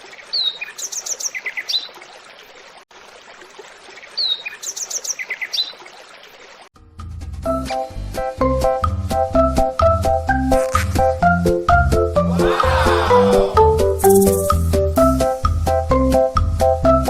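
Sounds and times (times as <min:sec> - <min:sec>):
birds chirping and trilling: 0:00.0 - 0:02.0, 0:04.0 - 0:05.9, 0:12.3 - 0:14.5.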